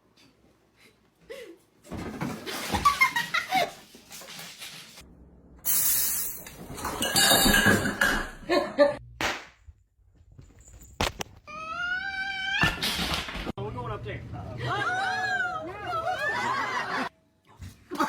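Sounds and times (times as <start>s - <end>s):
people laughing: 14.5s - 17.1s.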